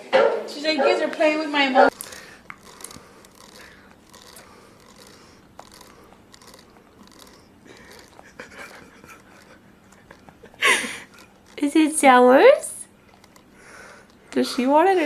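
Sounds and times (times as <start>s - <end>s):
baby sucking and chewing: 1.9s - 11.8s, 12.9s - 15.0s.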